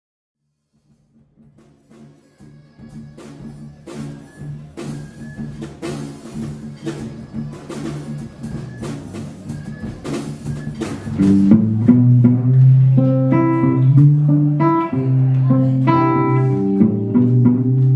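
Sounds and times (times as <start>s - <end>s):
drum beat: 10.0s - 12.4s
bass line: 11.0s - 17.9s.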